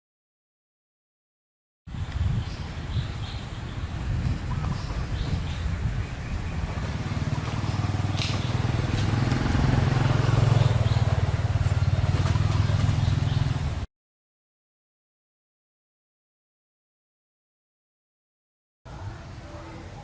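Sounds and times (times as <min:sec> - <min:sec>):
motor vehicle engine humming: 0:01.9 - 0:13.9.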